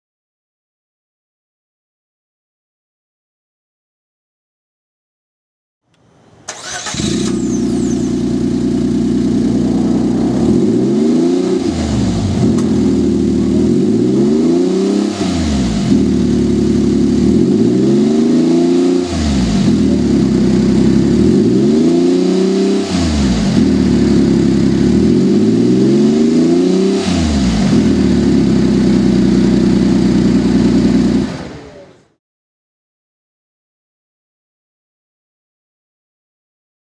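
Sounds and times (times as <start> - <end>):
truck engine idling and revving: 6.5 - 32.0.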